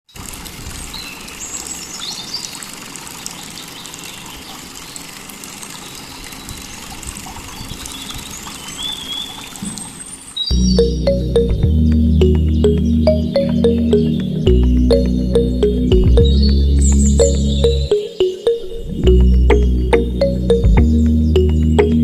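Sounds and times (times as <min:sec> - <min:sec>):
birds chirping: 0:07.6 - 0:22.0.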